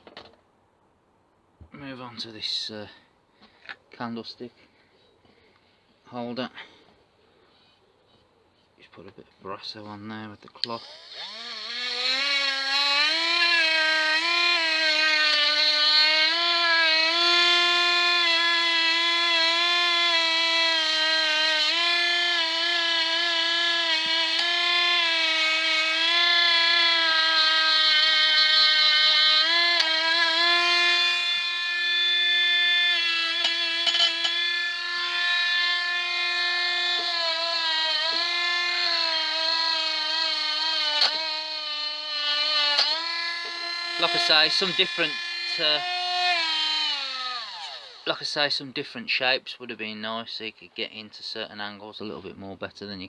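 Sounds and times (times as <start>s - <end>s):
grinder motor whine: 10.6s - 48.6s.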